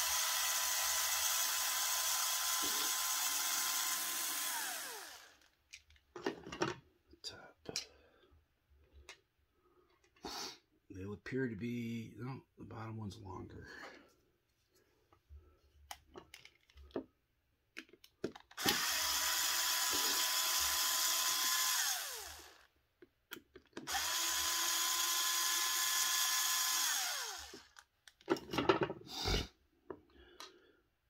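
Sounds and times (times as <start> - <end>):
cordless power driver whine: 0.0 - 5.5, 18.6 - 22.7, 23.8 - 27.8
clicks and knocks of parts handled: 5.4 - 6.8, 15.7 - 18.7, 23.0 - 23.9, 27.5 - 29.0
parts clattering: 5.4 - 6.9, 15.8 - 17.1, 27.5 - 29.1.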